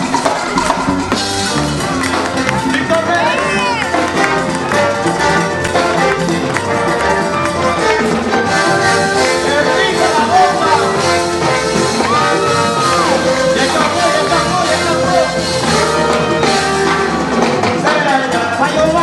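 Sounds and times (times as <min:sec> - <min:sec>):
brass horns: 0:00.0 - 0:19.0
person singing: 0:08.4 - 0:16.7.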